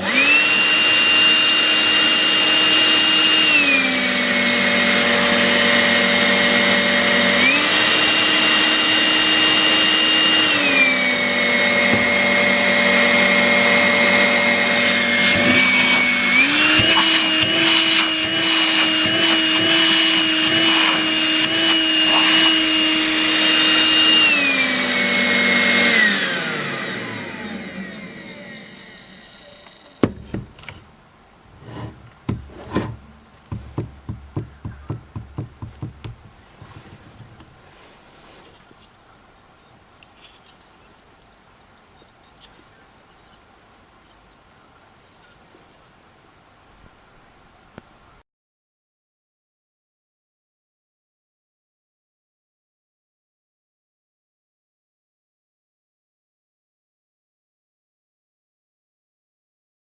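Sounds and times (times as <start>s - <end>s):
stick vacuum whining: 0.0s - 31.0s, 31.6s - 37.5s.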